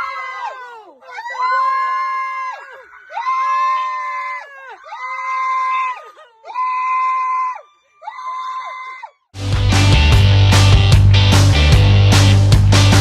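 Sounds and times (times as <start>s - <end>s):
high-pitched screams: 0.0s - 9.2s.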